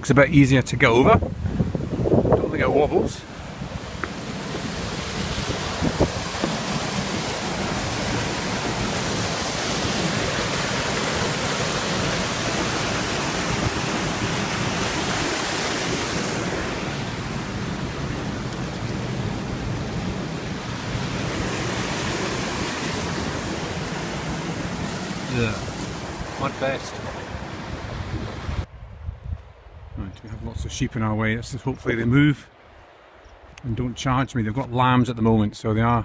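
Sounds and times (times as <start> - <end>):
fast-flowing river water: 2.8 - 28.7.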